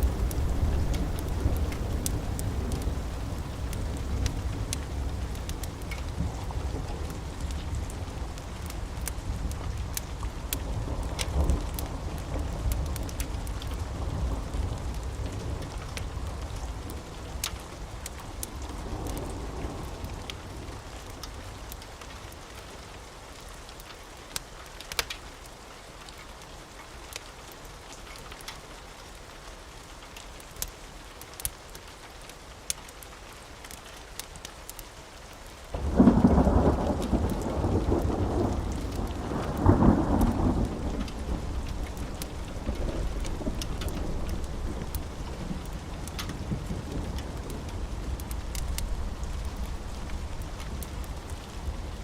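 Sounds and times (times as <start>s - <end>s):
thunder rolling: 0.0s - 9.9s, 35.8s - 52.0s
sharp crackles: 0.0s - 22.1s, 35.7s - 52.0s
steady rain: 0.0s - 52.0s.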